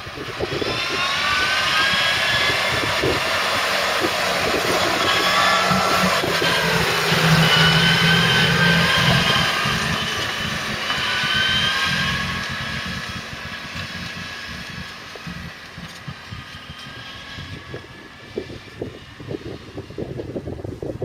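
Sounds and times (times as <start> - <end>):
steady high machine whine: 0.0 - 20.9
diesel machinery engine running: 0.0 - 21.0.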